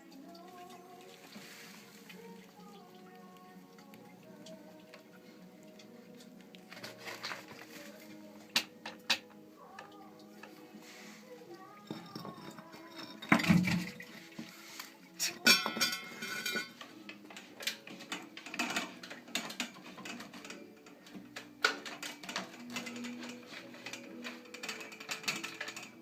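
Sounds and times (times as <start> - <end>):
metallic clinks and knocks: 11.8 - 14.0, 15.2 - 16.8.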